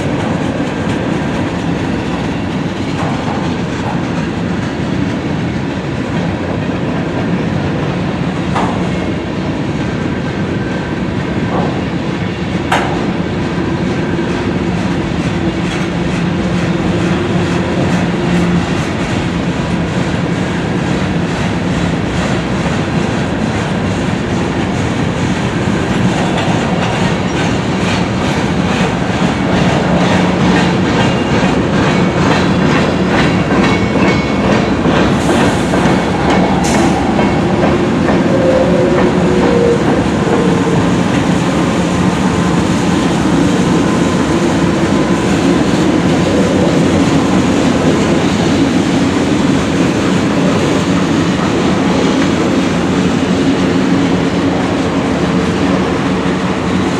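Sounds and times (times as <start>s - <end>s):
train wheels clacking over rail joints: 0.0s - 10.3s, 11.2s - 56.9s
train rumble and hum: 0.0s - 56.9s.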